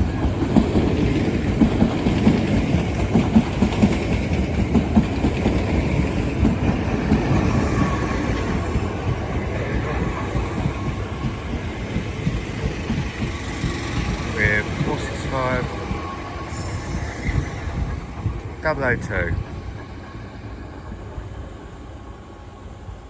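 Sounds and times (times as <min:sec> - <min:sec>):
train wheels clicking over rail joints: 0:00.0 - 0:21.4
train rumble: 0:00.0 - 0:23.0.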